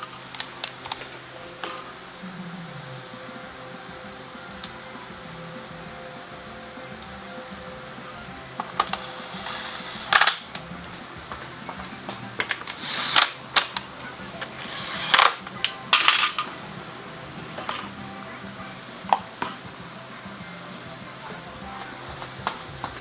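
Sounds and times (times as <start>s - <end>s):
faint background music: 0.0s - 23.0s
metallic clanks and clicks of tools: 11.8s - 16.6s.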